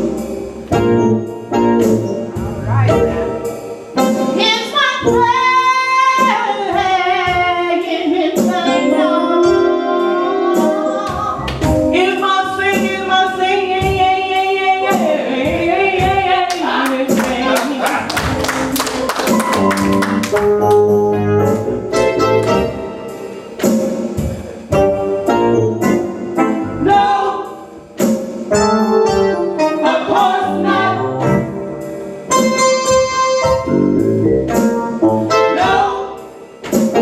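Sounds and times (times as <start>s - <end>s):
steady beat: 0.0s - 5.5s, 8.4s - 37.0s
keyboard: 0.0s - 37.0s
person singing gospel: 4.4s - 18.4s, 29.6s - 31.3s, 35.3s - 36.3s.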